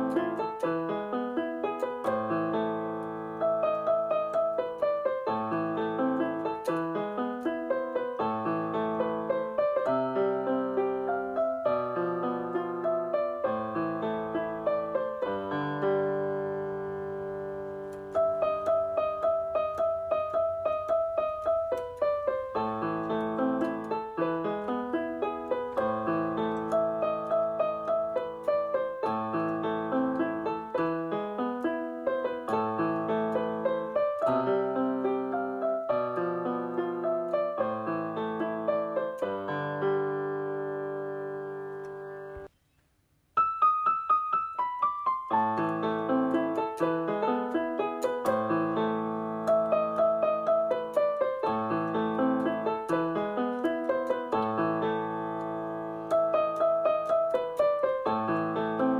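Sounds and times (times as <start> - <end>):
piano music: 0.0 - 42.5, 43.4 - 58.9.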